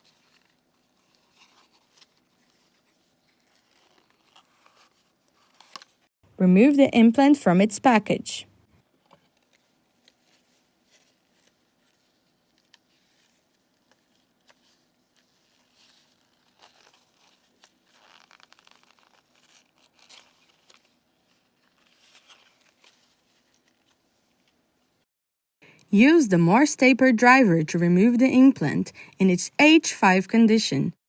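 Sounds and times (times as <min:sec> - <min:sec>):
plastic packaging crinkling: 0:00.0 - 0:06.1, 0:09.3 - 0:24.5.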